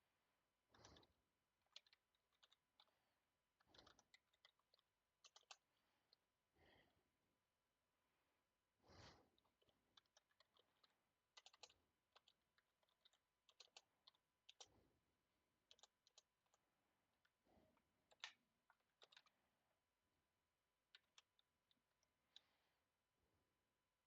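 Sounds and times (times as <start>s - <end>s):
computer keyboard typing: 3.6s - 5.7s, 9.6s - 14.8s, 15.6s - 16.6s.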